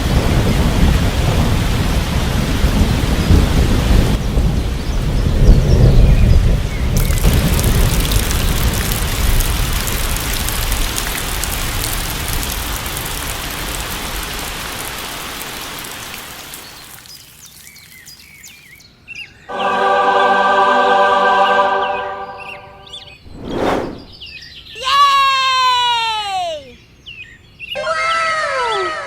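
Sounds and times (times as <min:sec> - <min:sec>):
low rumbling thunder: 0:00.0 - 0:13.8
heavy rain: 0:00.0 - 0:18.8
bird chirps: 0:16.6 - 0:19.6.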